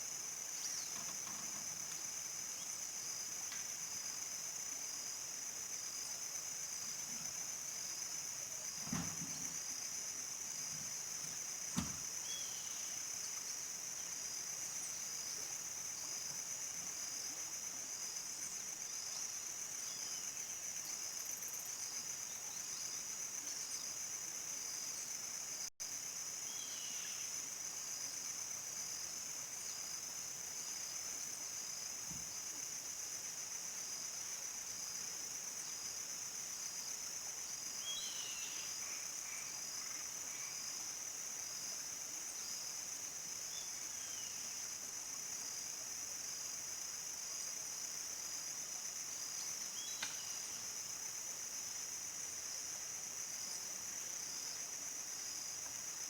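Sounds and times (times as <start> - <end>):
crickets trilling: 0.0 - 56.0
single knock: 11.8 - 12.0.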